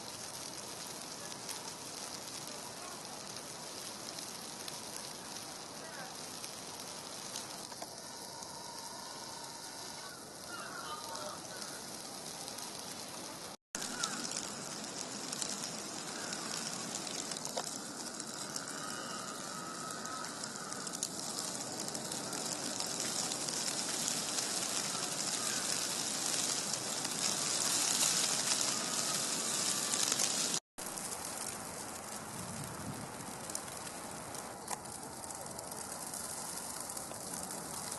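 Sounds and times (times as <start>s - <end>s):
wet snow falling: 0.0s - 37.9s.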